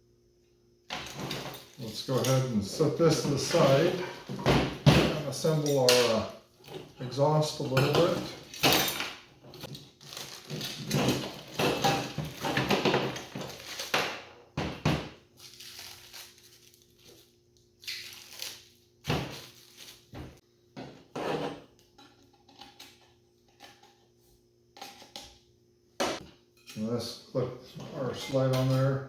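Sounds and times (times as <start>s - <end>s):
metal parts rustling and clattering: 0.9s - 14.0s.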